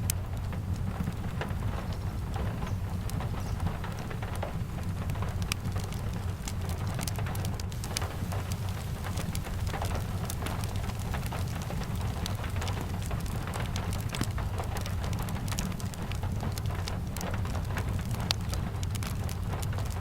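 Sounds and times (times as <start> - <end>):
steady rain: 0.0 - 20.0
wood fire crackling: 0.0 - 20.0.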